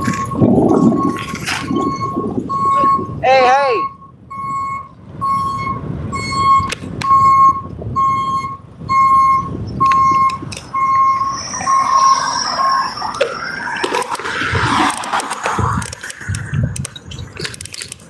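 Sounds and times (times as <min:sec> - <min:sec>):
high whine: 0:00.0 - 0:04.0
electronic beeper beeping: 0:00.0 - 0:14.0
street noise rumble: 0:00.0 - 0:18.0.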